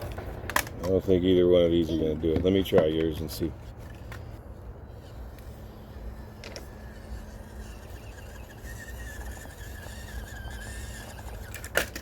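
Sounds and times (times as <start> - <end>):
small electric motor whining: 3.8 - 12.0.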